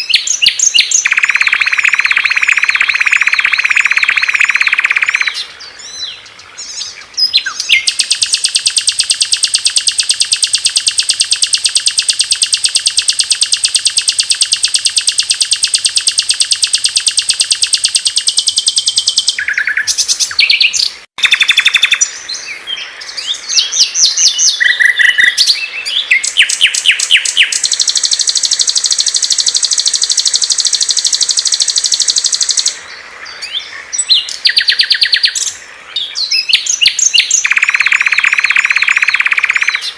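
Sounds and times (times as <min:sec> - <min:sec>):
songbird fast high trills: 0:00.0 - 0:06.1, 0:06.8 - 0:22.2, 0:23.3 - 0:32.9, 0:36.3 - 0:39.9
bird chirps and whistles: 0:00.0 - 0:22.4, 0:23.2 - 0:32.8, 0:33.5 - 0:35.5, 0:36.1 - 0:39.9.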